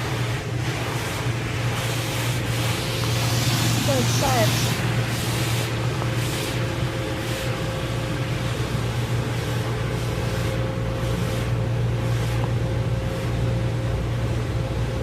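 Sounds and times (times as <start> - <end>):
hiss of spray: 0.0 - 6.7
car wash machine drone: 0.0 - 15.0.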